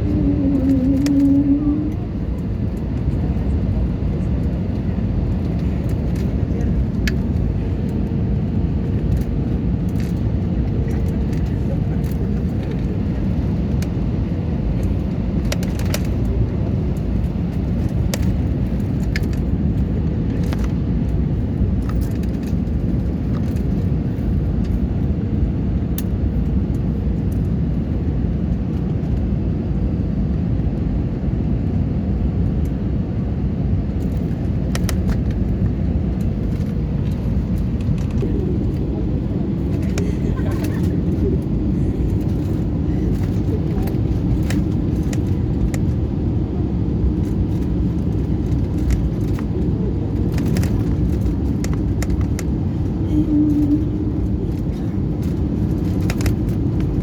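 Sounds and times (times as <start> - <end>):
faint steady hum: 0.0 - 28.2
low engine rumble: 0.0 - 57.0.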